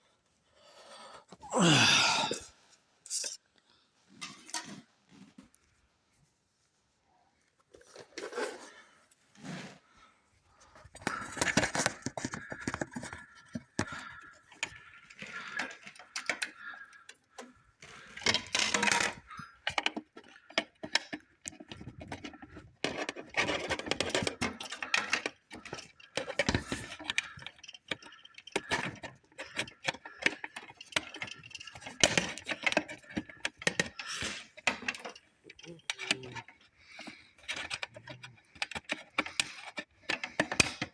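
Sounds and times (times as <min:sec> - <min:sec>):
small hard objects clicking and rattling: 0:10.9 - 0:40.9.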